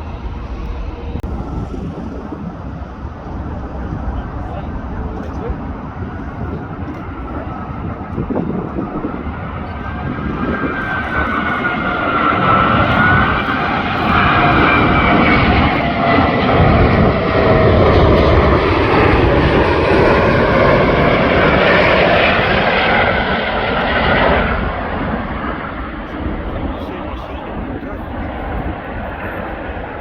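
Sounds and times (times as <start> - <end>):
jet engine roar with whine: 0.0 - 30.0.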